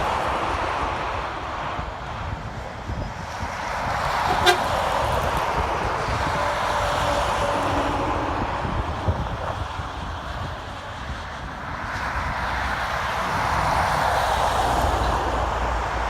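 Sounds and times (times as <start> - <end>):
trucks passing by: 0.0 - 16.0
faint horn tooting: 4.3 - 4.7.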